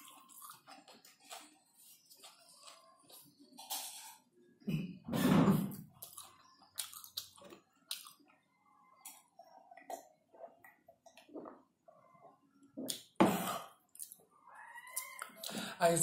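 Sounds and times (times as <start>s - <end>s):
person chewing with wet clicks: 0.0s - 3.9s, 5.9s - 11.9s, 12.6s - 13.2s, 13.9s - 14.3s.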